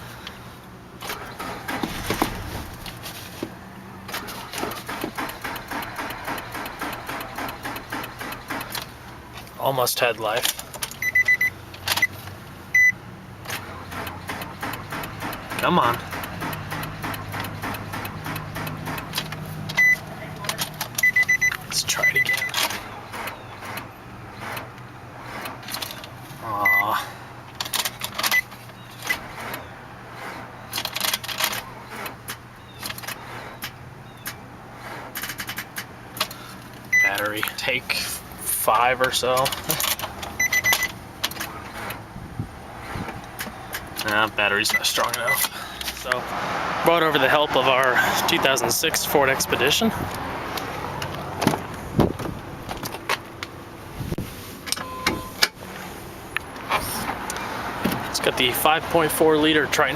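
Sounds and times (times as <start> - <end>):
car starter clicking: 1.0 - 3.0, 4.0 - 9.4, 13.5 - 21.6
high beeps: 11.0 - 12.1, 12.8 - 13.0, 19.8 - 20.0, 21.0 - 22.6, 26.6 - 27.0, 36.9 - 37.2, 40.4 - 40.9, 54.8 - 55.4.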